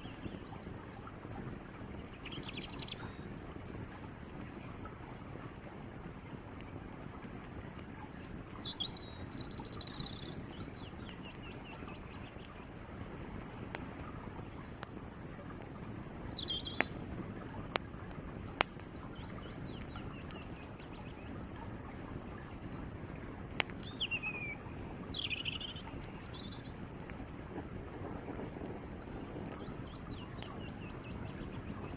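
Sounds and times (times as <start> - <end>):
wood fire crackling and popping: 0.0 - 31.9
songbird trilling: 2.0 - 5.3, 8.1 - 12.8, 15.1 - 17.0, 18.5 - 26.8, 28.9 - 31.9.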